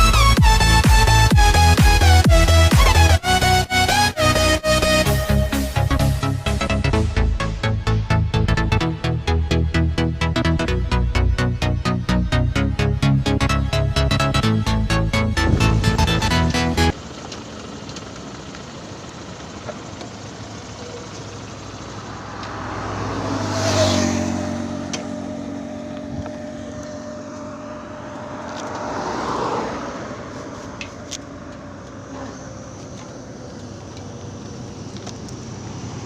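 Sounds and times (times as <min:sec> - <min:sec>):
background music: 0:00.0 - 0:17.0
road traffic: 0:00.0 - 0:36.0
vehicle passing: 0:14.0 - 0:17.0, 0:20.8 - 0:36.0.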